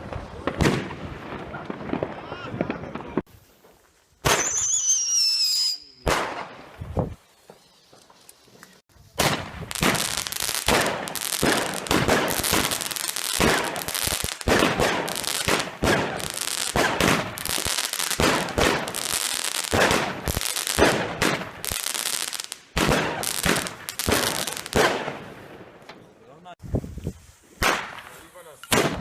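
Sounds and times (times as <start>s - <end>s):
fireworks bangs and crackles: 0.0s - 26.6s, 27.5s - 29.0s.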